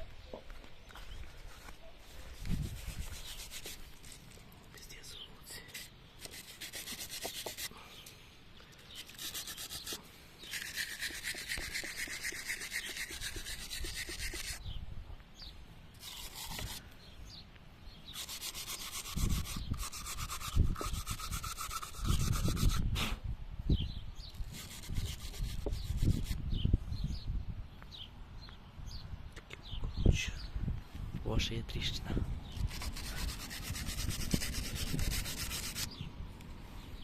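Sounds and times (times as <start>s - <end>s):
hand tool rasping and scraping: 5.7s - 7.7s, 8.9s - 14.6s, 18.2s - 22.8s, 32.6s - 35.9s.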